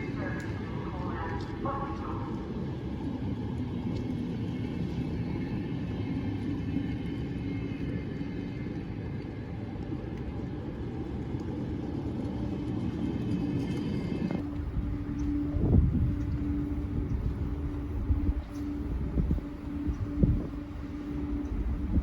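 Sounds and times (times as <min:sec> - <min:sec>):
faint high whine: 0:00.0 - 0:08.8, 0:14.3 - 0:22.0
train rumbling: 0:00.0 - 0:09.6, 0:11.9 - 0:22.0.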